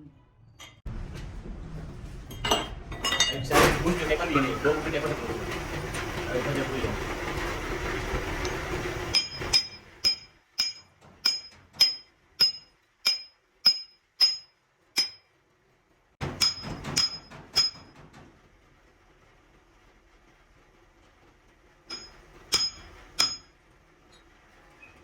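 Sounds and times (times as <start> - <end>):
workshop noise: 0.0 - 15.5, 16.2 - 18.8, 21.8 - 25.0
hammer striking steel: 9.1 - 15.3, 16.2 - 18.0, 21.9 - 23.5.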